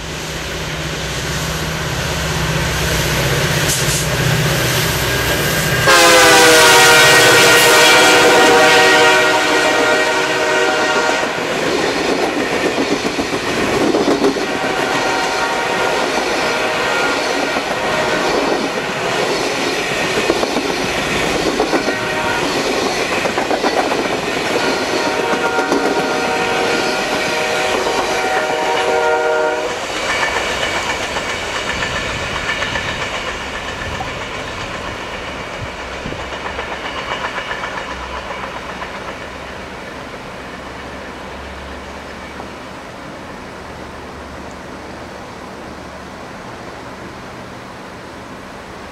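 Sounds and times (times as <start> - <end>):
train wheels clattering: 2.8 - 42.5
train horn: 5.8 - 11.5, 14.4 - 18.8, 21.7 - 22.8, 24.4 - 30.3.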